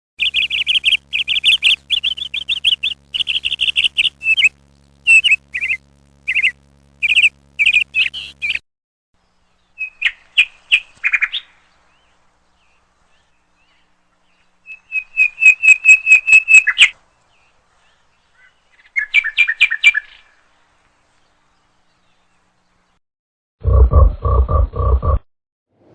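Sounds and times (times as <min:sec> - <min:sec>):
small birds chirping: 0:00.2 - 0:08.6, 0:09.2 - 0:23.0.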